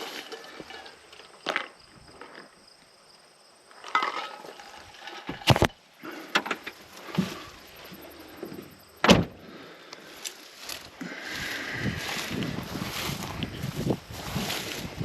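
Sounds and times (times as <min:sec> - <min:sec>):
rustling and handling noises: 0:00.0 - 0:02.4, 0:10.0 - 0:15.0.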